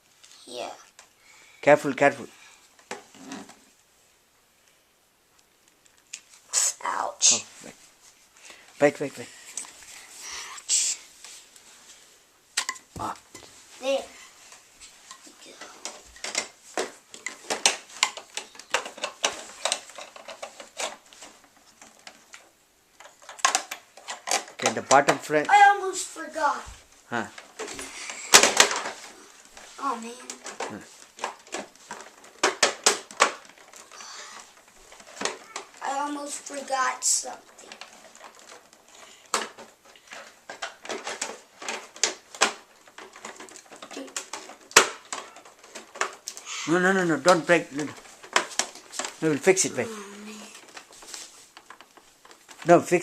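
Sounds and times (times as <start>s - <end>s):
plastic parts clicking and knocking: 2.8s - 3.6s, 12.6s - 13.5s, 14.5s - 25.6s, 27.2s - 53.0s
light plastic rattling: 12.6s - 25.4s, 27.3s - 53.0s.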